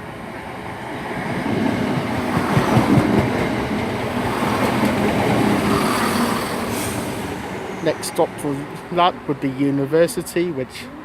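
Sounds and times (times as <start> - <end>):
diesel train engine: 0.0 - 11.0
rail and wheel noise: 0.0 - 11.0.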